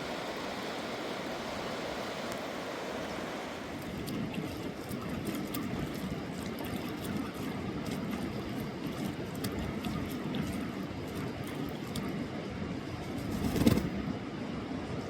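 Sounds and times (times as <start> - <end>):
river rushing: 0.0 - 3.8.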